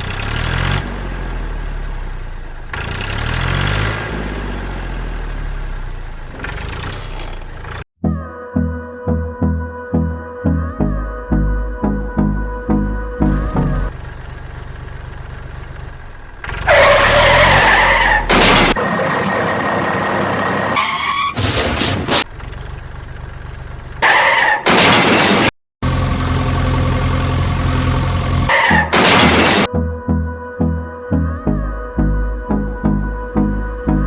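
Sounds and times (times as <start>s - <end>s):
engine-like hum: 0.0s - 7.9s, 10.8s - 21.0s, 21.6s - 25.2s, 25.8s - 34.0s
tyres skidding squeals: 6.1s - 7.8s, 13.8s - 25.5s, 28.2s - 29.7s.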